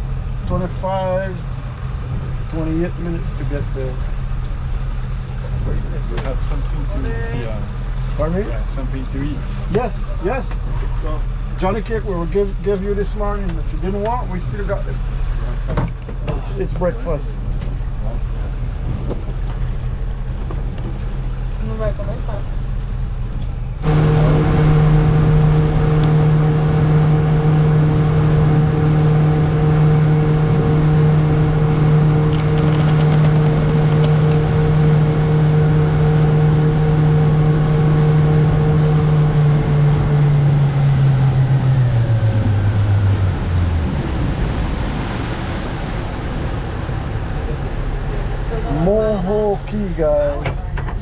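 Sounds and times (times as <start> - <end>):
boat engine droning: 0.0 - 51.0
water noise: 0.0 - 51.0
wind noise: 22.5 - 36.3, 37.3 - 48.0.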